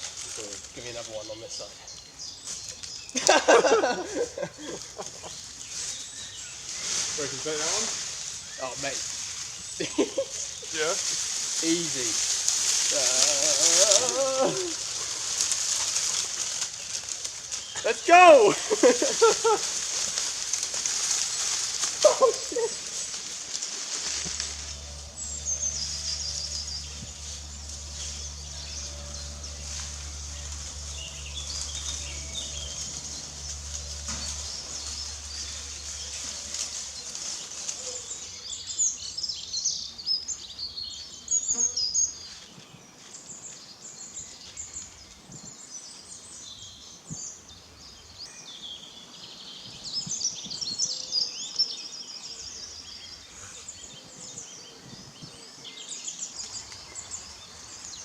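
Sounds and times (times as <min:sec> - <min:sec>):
birds singing and chirping: 0:00.0 - 0:58.0
low steady hum: 0:18.6 - 0:38.9.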